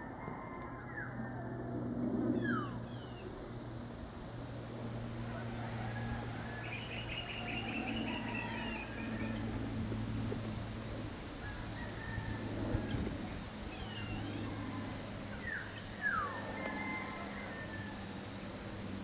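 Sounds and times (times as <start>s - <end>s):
steady low hum: 0.0s - 19.0s
birds chirping: 6.4s - 10.7s, 12.9s - 17.6s
bird trilling: 13.7s - 14.8s.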